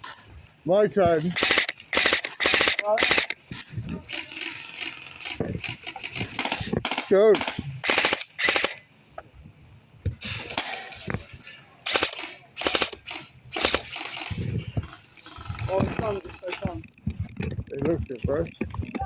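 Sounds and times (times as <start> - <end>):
airsoft gun shots: 1.1 - 3.6, 5.3 - 8.8, 11.9 - 14.5.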